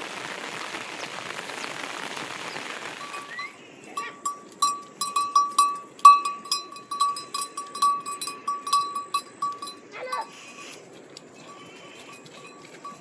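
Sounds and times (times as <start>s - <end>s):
small metal bell clanking: 3.9s - 10.8s, 11.4s - 13.0s.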